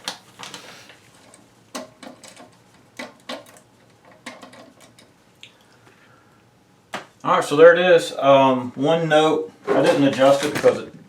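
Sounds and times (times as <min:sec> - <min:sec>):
hard objects clicking and knocking: 0:01.7 - 0:05.1.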